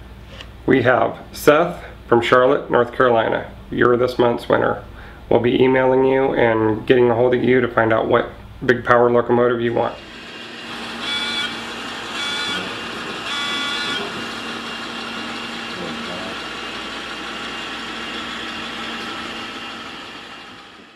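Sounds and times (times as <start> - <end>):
locomotive running: 10.0 - 20.9
locomotive horn blasts: 10.9 - 14.2.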